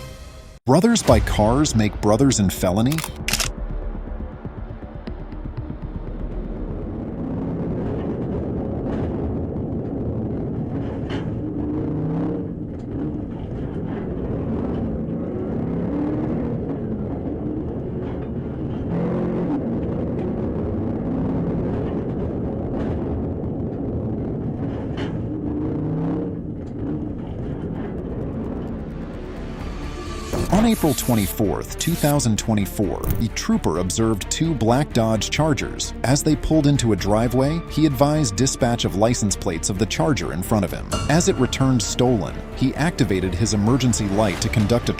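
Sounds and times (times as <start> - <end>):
road noise: 3.0 - 33.6
car engine: 3.1 - 37.9.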